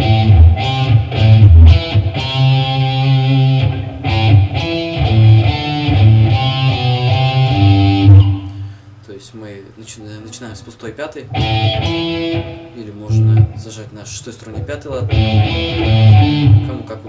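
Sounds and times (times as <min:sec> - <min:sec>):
guitar single-note riff: 0:00.0 - 0:08.8, 0:11.3 - 0:13.8, 0:14.9 - 0:17.0.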